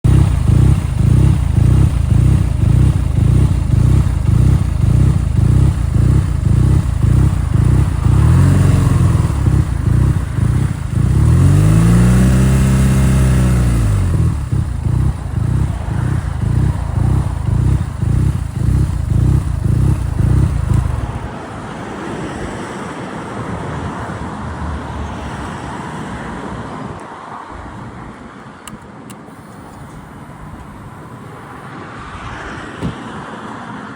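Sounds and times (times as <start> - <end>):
motorcycle engine idling roughly: 0.0 - 21.3
motorcycle engine revving: 0.0 - 21.3.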